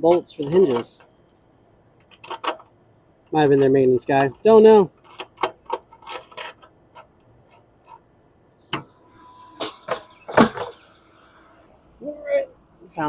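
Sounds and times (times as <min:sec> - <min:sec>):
metal hardware clicking: 0:02.0 - 0:02.7.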